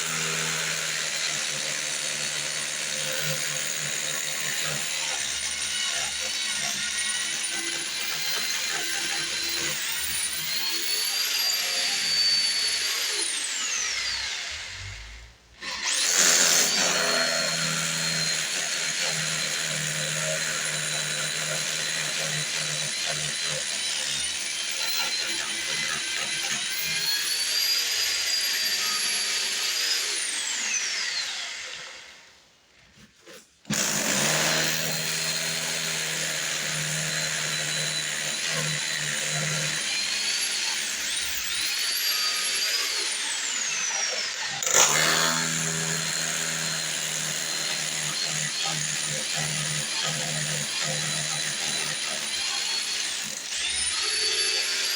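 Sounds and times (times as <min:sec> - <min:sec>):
power tool whining: 0:00.0 - 0:32.3, 0:33.2 - 0:54.9.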